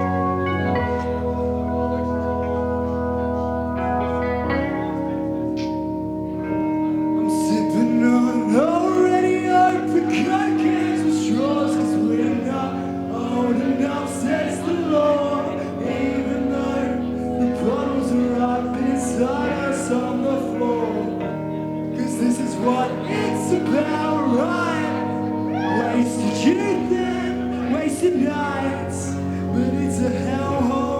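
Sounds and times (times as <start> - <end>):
person singing: 7.1 - 30.9.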